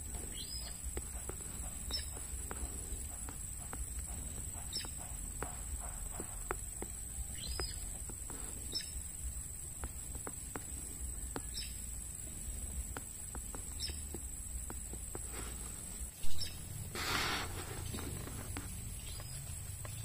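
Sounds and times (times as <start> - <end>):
high bird chirps: 0.3 - 2.3, 11.1 - 11.9, 13.5 - 14.2, 16.2 - 16.7.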